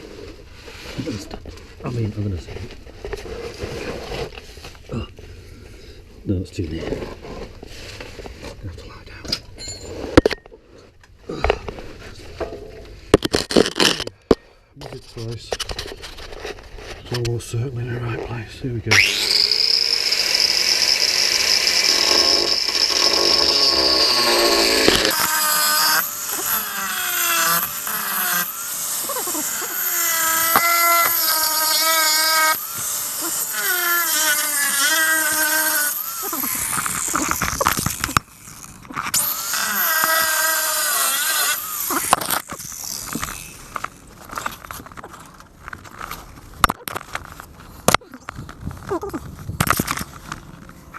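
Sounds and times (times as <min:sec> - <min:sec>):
power tool cutting steel: 0:18.9 - 0:44.8.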